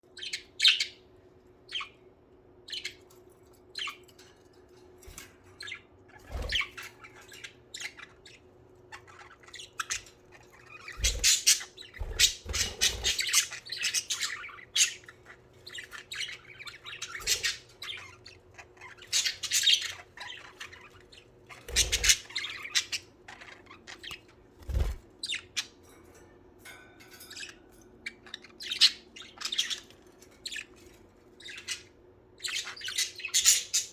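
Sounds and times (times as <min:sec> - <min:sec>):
faint steady hum: 0:00.0 - 0:33.9
budgerigars chirping and squawking: 0:00.1 - 0:01.1, 0:01.7 - 0:02.1, 0:02.7 - 0:25.9, 0:27.1 - 0:33.9.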